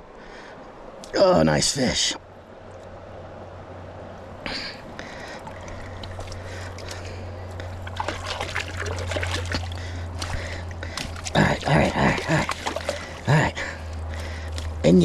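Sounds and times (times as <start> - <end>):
shallow water splashing: 4.3 - 14.8.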